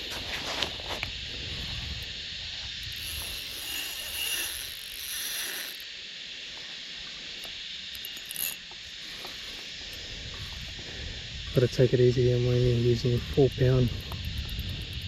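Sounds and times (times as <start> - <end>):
fishing reel clicking and ratcheting: 2.8 - 5.9, 7.4 - 9.3, 13.0 - 15.0.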